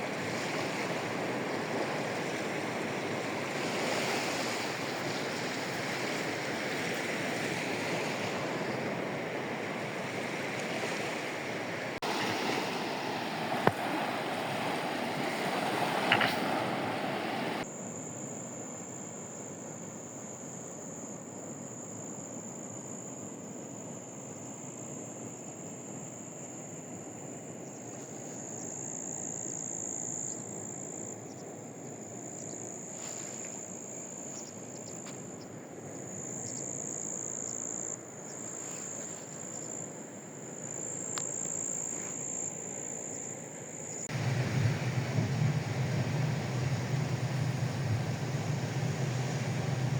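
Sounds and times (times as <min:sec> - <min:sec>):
sea waves washing on shore: 0:00.0 - 0:17.6, 0:44.0 - 0:49.9
insects trilling: 0:21.8 - 0:49.9.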